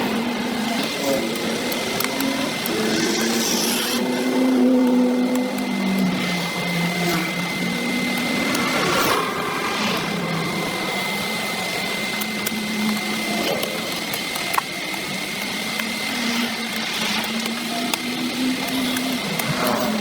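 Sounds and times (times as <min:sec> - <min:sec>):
small motor humming: 0:00.0 - 0:20.0
sharp ticks: 0:12.1 - 0:20.0.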